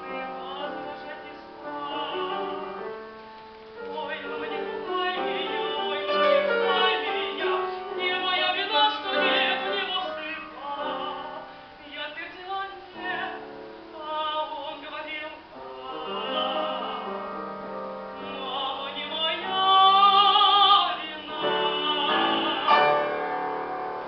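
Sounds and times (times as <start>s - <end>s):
woman singing with vibrato: 0.0s - 3.0s, 3.8s - 23.6s
instrumental accompaniment: 15.5s - 24.0s.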